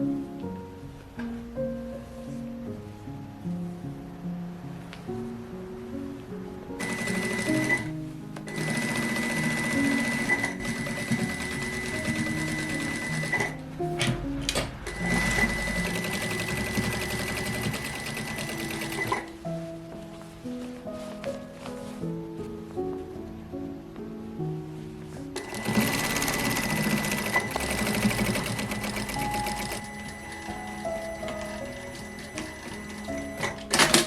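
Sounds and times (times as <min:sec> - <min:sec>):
soft guitar music: 0:00.0 - 0:34.0
sewing machine stitching: 0:06.8 - 0:07.9, 0:08.5 - 0:13.6, 0:14.5 - 0:19.3, 0:25.4 - 0:30.4.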